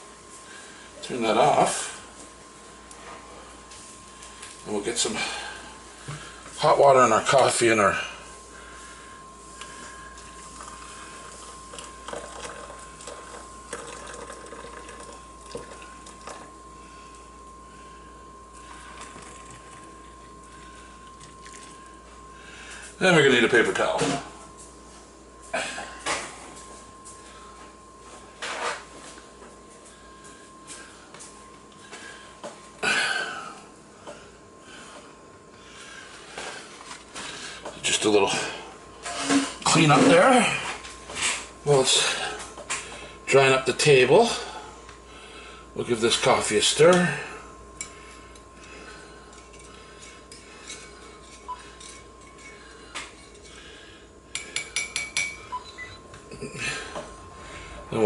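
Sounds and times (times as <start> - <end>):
faint high whine: 0.0 - 58.0
hot water pouring into cups: 10.3 - 16.5, 18.8 - 22.0.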